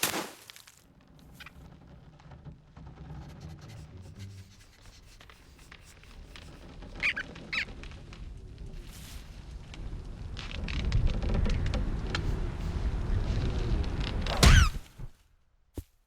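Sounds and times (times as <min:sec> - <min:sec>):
soft low ambient rumble: 0:00.9 - 0:15.5
cartoon animal squeaks: 0:07.0 - 0:07.7.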